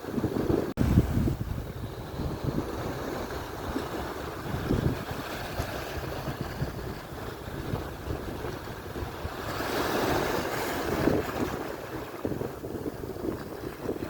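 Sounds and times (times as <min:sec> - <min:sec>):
surf breaking on shore: 0:00.0 - 0:14.0
wind buffeting microphone: 0:00.0 - 0:14.0.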